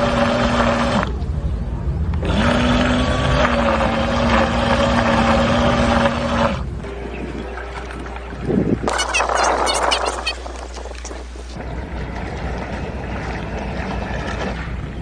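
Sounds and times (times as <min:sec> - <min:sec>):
electric motors whining: 0:00.0 - 0:15.0
propellers hissing in water: 0:08.5 - 0:11.9.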